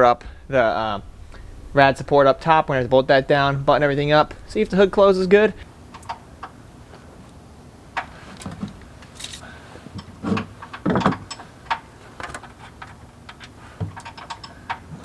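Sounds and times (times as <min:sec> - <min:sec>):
loud thuds: 0:00.0 - 0:07.0
tools and parts clicking: 0:10.0 - 0:14.9.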